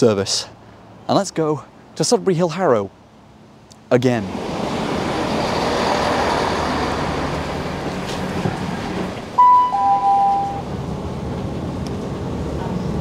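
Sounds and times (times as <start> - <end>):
train rumble and hiss: 4.9 - 13.0
two-tone electronic chime: 9.4 - 10.6.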